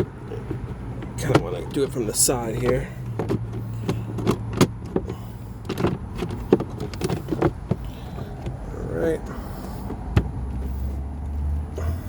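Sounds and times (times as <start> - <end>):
plastic clicks taps and scrapes: 0.0 - 8.6.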